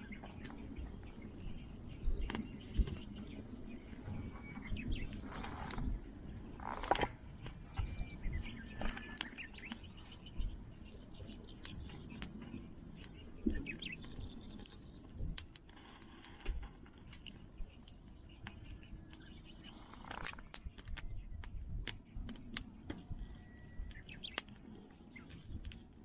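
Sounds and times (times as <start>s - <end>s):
small birds chirping: 0.0s - 26.0s
wood fire crackling: 9.0s - 19.2s.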